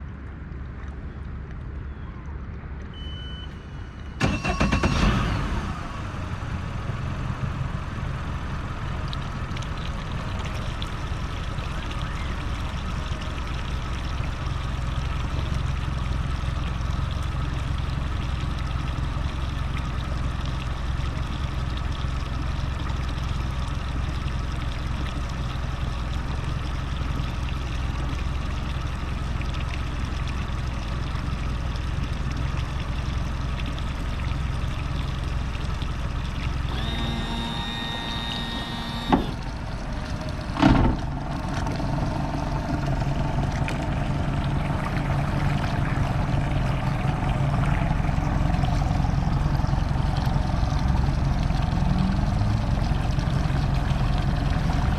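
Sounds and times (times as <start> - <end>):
short beep: 2.9 - 5.3
outboard motor running: 3.0 - 54.9.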